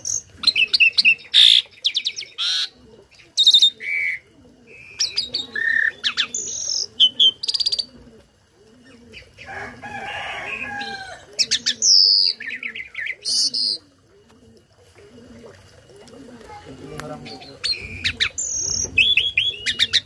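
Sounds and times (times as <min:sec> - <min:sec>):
starling singing: 0:16.4 - 0:20.0.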